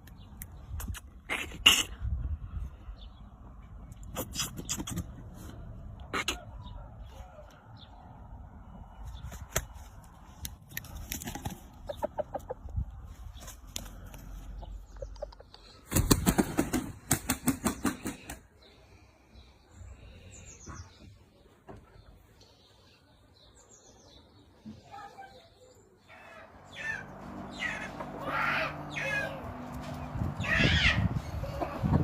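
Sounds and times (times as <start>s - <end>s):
rooster flapping wings: 11.0s - 11.8s, 15.8s - 18.4s.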